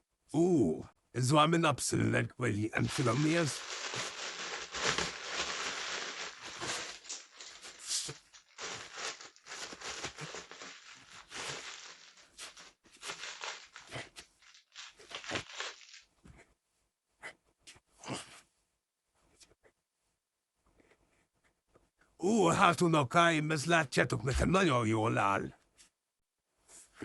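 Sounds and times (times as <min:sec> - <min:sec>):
packaging crinkling and tearing: 0:02.8 - 0:16.1.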